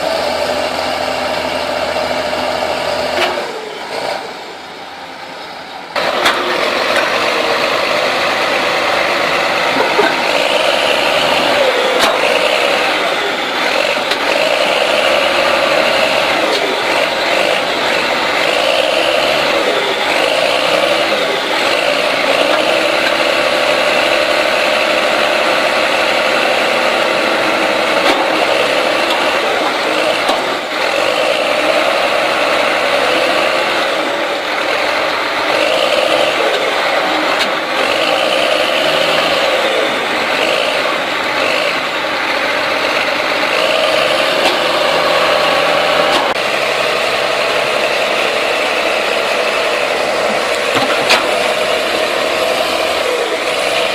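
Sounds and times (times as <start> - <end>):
heavy diesel engine running: 0.0 - 53.9.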